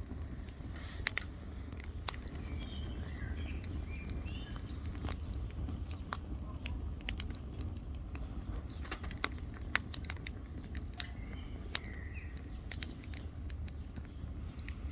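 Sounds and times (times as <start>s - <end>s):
campfire crackling and popping: 0.0s - 14.9s
bird whistling: 5.9s - 7.7s, 10.6s - 12.6s.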